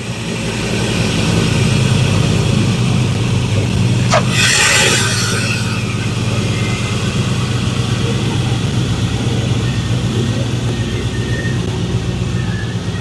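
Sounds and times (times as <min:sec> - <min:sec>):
pickup truck engine idling: 0:06.0 - 0:13.0.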